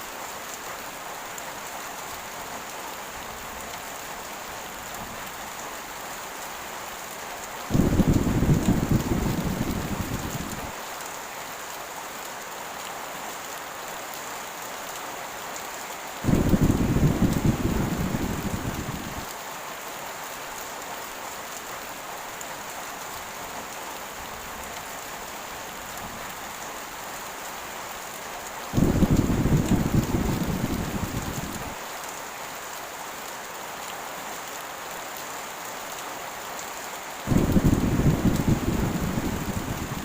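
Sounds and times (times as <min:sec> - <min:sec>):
heavy rain hiss: 0:00.0 - 0:40.0
low thunder rumbles: 0:07.7 - 0:10.7, 0:16.3 - 0:19.3, 0:28.8 - 0:31.8, 0:37.3 - 0:40.0.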